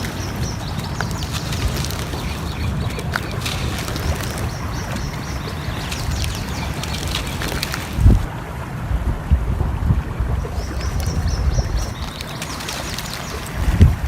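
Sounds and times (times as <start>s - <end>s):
small crackles: 0.0s - 8.3s, 11.8s - 14.0s.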